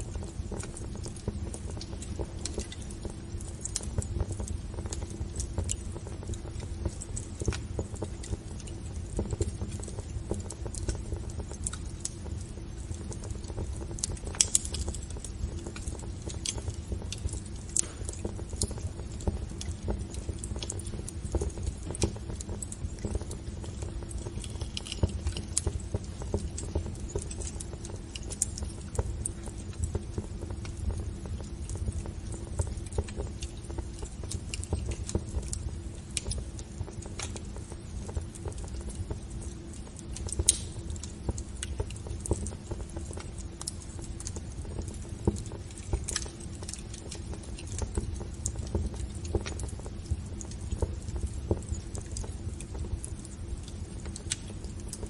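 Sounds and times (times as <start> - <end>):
low fire rumble: 0.0 - 55.0
wood fire crackling and popping: 0.0 - 55.0.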